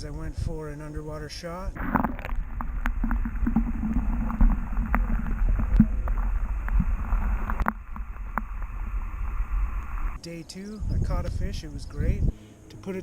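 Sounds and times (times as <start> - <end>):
wind rumbling on microphone: 0.0 - 13.0
water sloshing against kayak hull: 1.7 - 10.2.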